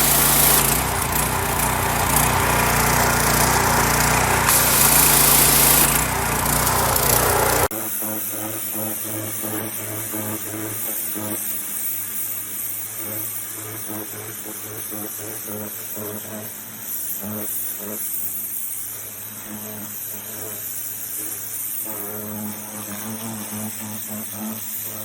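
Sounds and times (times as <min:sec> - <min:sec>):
engine running: 0:00.0 - 0:07.7.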